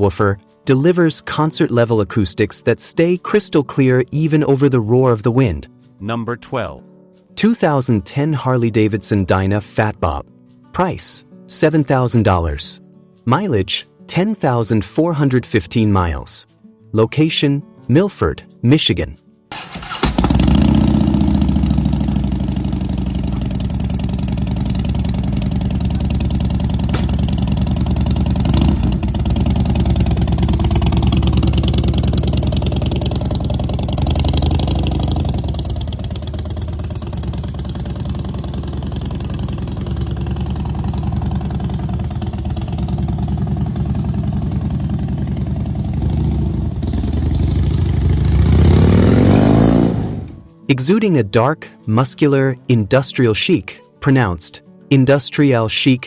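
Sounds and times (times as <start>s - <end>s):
motorcycle engine running and revving: 19.7s - 50.5s.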